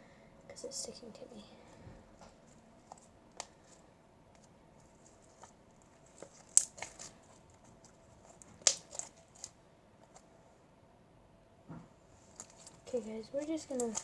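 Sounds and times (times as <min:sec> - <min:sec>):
slime crackling and popping: 0:05.1 - 0:07.5, 0:08.3 - 0:09.6, 0:12.4 - 0:14.0.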